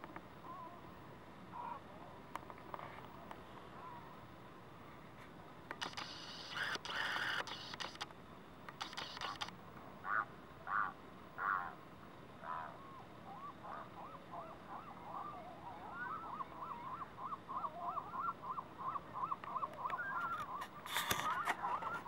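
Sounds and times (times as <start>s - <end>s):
birds calling rapidly: 5.8s - 8.0s, 8.7s - 11.8s, 12.4s - 22.0s.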